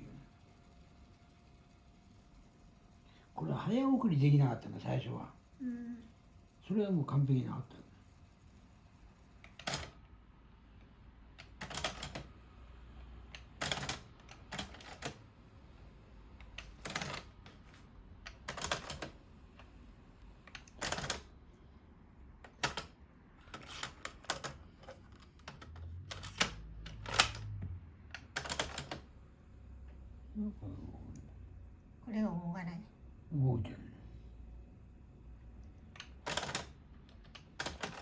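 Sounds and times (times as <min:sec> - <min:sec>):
tape mechanism clicks and clunks: 0:22.4 - 0:29.1, 0:35.8 - 0:38.0.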